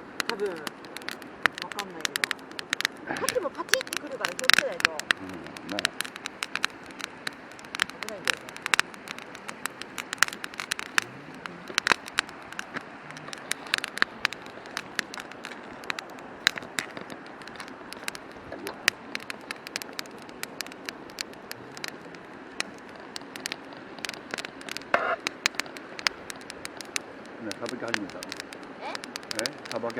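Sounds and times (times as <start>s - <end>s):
campfire crackling and popping: 0.0s - 29.9s.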